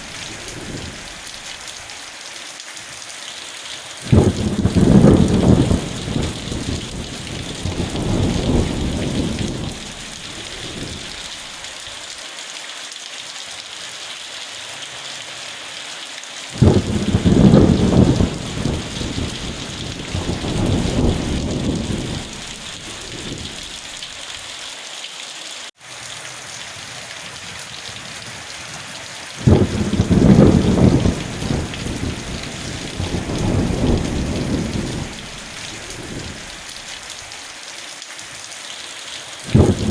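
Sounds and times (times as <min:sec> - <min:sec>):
thunder rumbling: 0:00.0 - 0:01.4, 0:04.1 - 0:11.6, 0:16.6 - 0:24.2, 0:27.0 - 0:36.9, 0:39.5 - 0:39.9
steady rain: 0:00.0 - 0:39.9.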